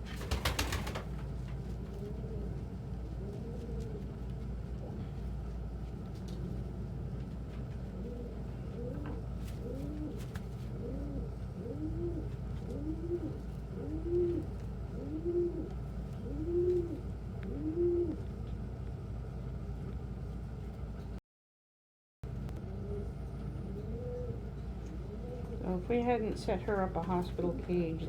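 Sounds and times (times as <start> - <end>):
pigeon cooing: 1.8 - 5.2, 7.8 - 18.4, 22.6 - 25.7.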